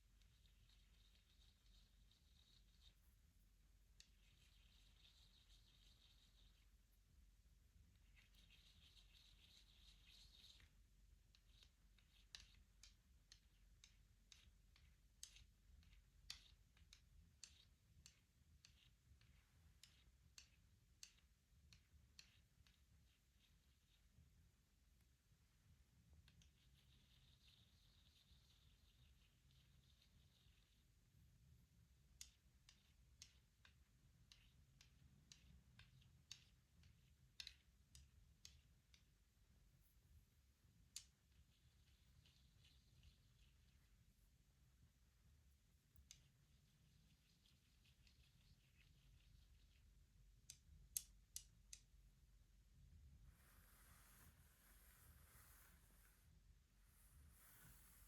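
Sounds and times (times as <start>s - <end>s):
soft scratching: 0.0s - 7.1s, 7.7s - 24.2s, 26.2s - 31.0s, 52.8s - 58.0s.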